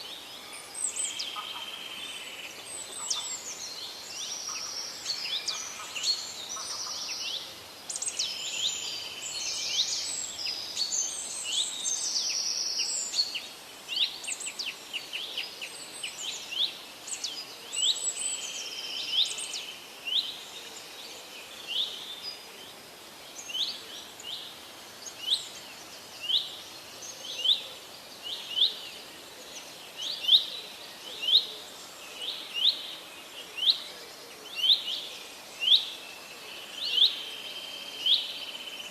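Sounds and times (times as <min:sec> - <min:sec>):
songbirds chirping: 0:00.0 - 0:38.9
outdoor hiss: 0:01.9 - 0:27.2.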